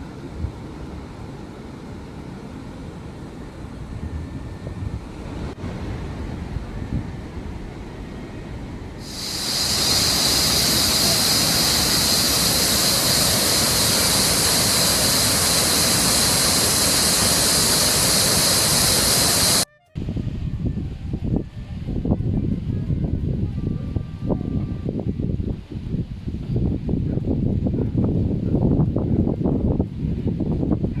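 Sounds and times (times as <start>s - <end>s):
rush of falling water: 9.0s - 19.6s.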